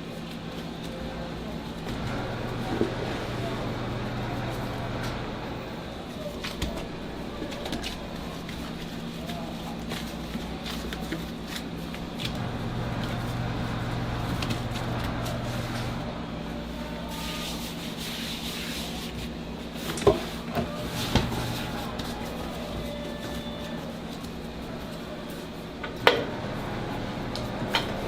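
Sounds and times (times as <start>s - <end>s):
low machine hum: 0.0s - 18.2s, 18.8s - 28.0s
dough rolling on wooden board: 17.2s - 25.5s.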